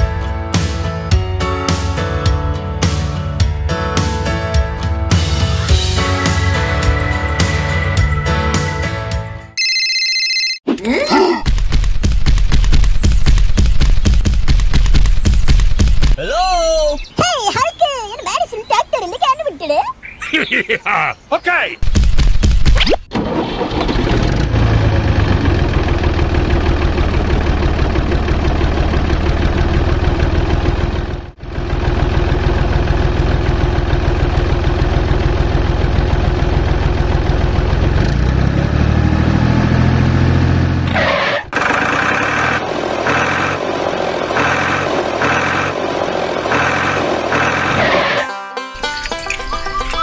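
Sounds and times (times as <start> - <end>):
tractor engine revving: 23.1 - 48.4.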